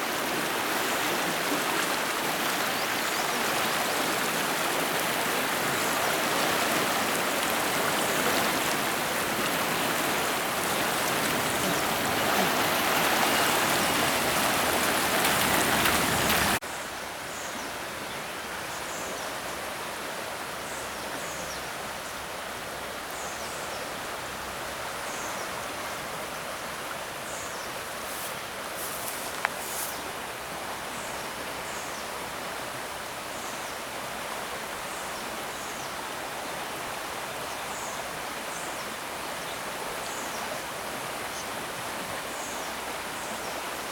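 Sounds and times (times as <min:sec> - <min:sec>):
river rushing: 0:00.0 - 0:16.7.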